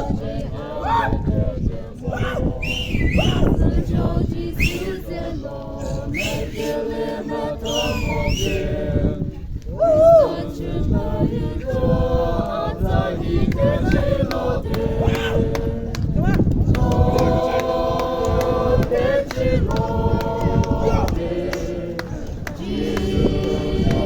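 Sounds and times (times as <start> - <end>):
group of voices singing: 0.0 - 24.0
crowd noise: 12.2 - 24.0.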